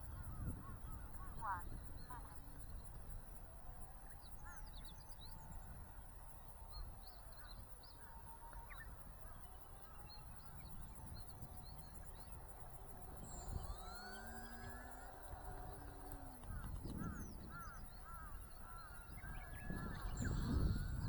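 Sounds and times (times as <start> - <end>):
wind on microphone: 0.0 - 3.4, 9.4 - 21.0
distant model plane motor whine: 0.0 - 21.0.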